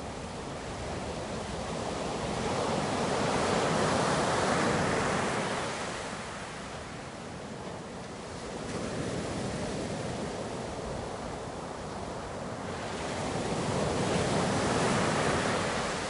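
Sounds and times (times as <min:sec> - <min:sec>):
ocean waves breaking: 0:12.7 - 0:16.0.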